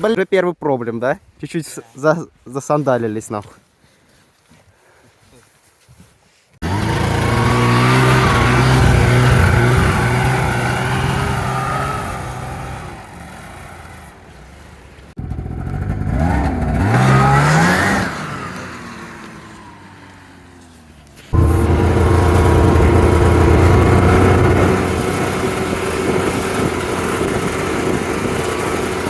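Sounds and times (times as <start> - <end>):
snowmobile engine revving: 6.6 - 14.4, 15.2 - 20.0, 21.3 - 29.0.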